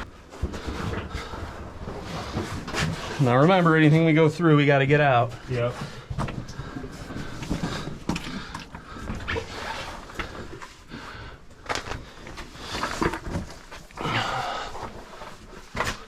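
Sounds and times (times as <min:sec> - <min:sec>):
bodies scraping against rock: 0:00.0 - 0:10.9.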